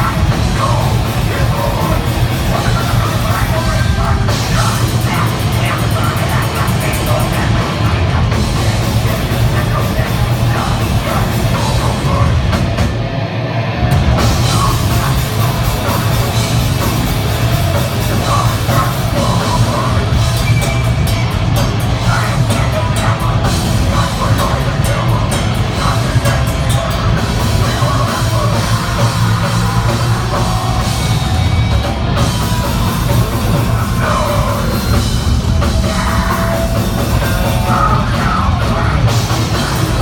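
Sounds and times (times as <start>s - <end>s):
distorted guitars: 0.0s - 40.0s
pounding drum kit: 0.0s - 40.0s.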